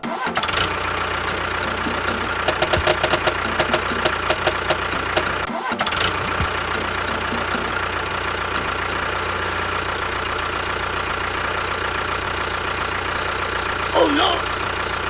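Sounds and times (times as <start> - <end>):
small engine idling: 0.4 - 15.0.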